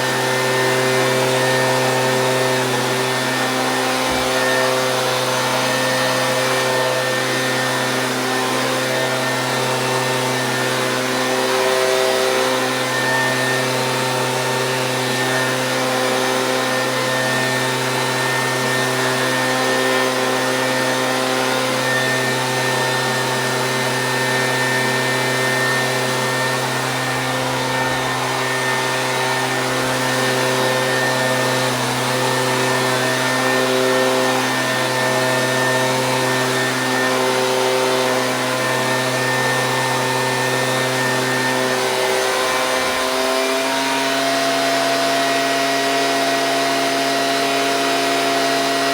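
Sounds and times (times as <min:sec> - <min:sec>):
leaf blower engine running: 0:00.0 - 0:48.9.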